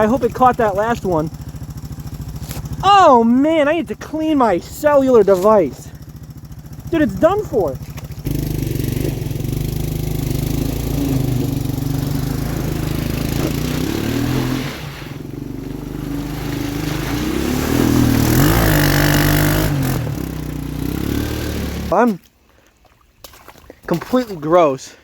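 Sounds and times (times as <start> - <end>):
small engine revving: 5.0 - 22.0.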